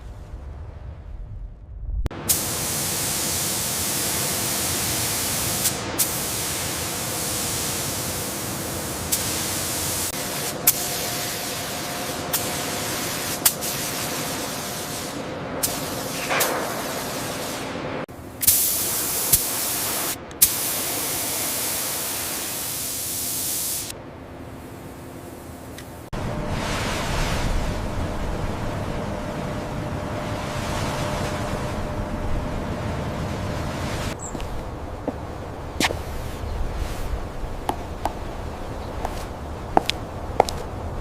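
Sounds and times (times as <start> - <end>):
loud steady hissing: 2.2 - 30.4.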